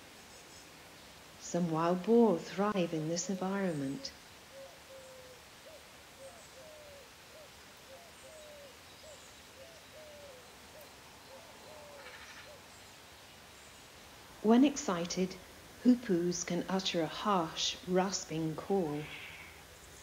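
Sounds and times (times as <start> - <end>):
bird calling softly: 3.3 - 14.0.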